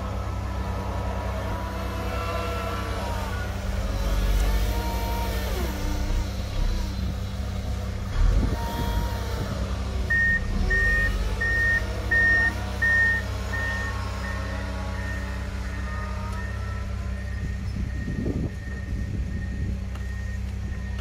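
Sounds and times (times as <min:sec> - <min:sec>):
snow-clearing vehicle engine running: 0:00.0 - 0:21.0
reversing alarm beeping: 0:10.0 - 0:21.0.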